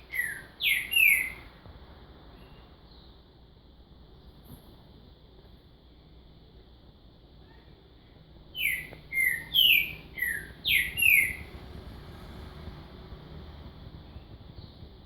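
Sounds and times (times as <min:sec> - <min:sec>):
bird whistling falling notes: 0:08.6 - 0:11.6.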